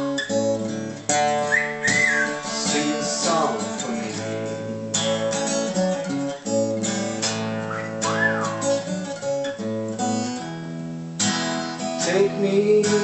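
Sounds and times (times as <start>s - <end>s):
acoustic guitar strumming: 0.0s - 13.0s
whistle-like sound: 1.4s - 2.6s, 7.6s - 8.8s
person singing: 1.8s - 5.1s, 12.0s - 13.0s.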